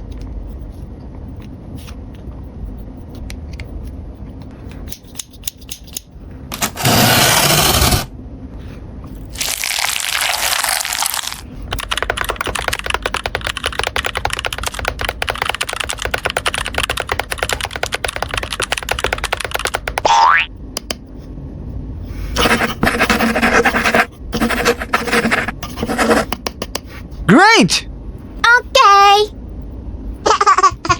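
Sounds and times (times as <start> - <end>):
plastic packaging crinkling: 9.3 - 11.4.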